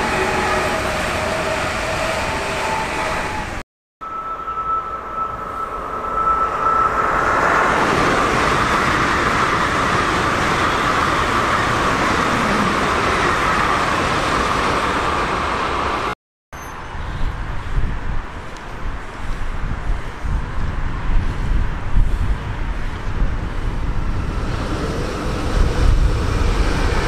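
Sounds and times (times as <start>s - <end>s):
train passing at speed: 0.0s - 16.2s, 19.8s - 27.0s
wind on microphone: 16.8s - 27.0s.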